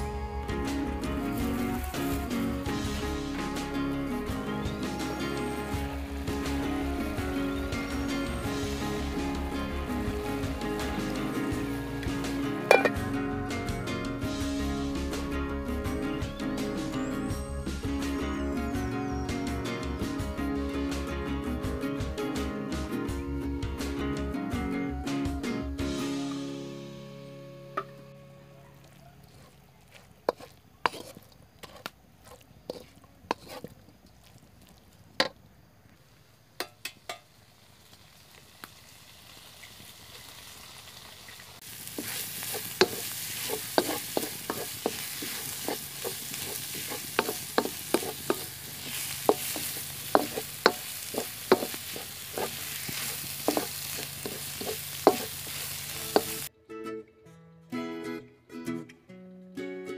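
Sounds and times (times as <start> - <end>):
frying sizzle: 0.0 - 18.4, 28.8 - 56.5
wooden spatula knocking on wok: 42.5 - 48.6, 49.2 - 55.4.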